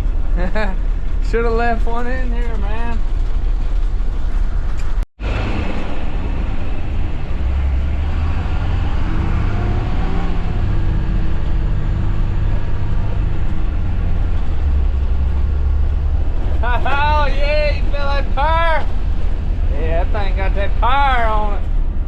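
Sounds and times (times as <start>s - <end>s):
vehicle engine deep rumble: 0.0s - 22.0s.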